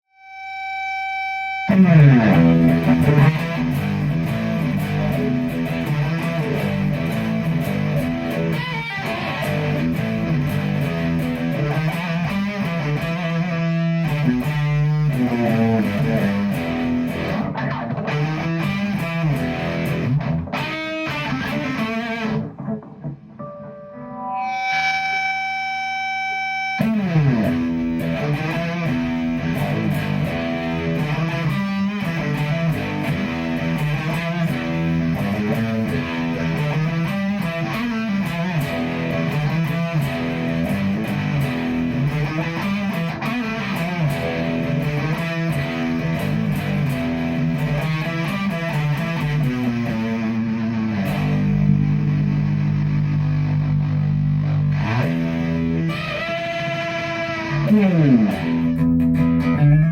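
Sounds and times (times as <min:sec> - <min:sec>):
distorted fuzz electric guitar: 0:00.1 - 0:59.9.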